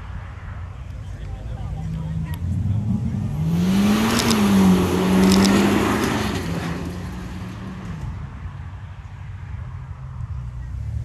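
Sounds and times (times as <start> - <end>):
car engine accelerating past: 1.8 - 8.6.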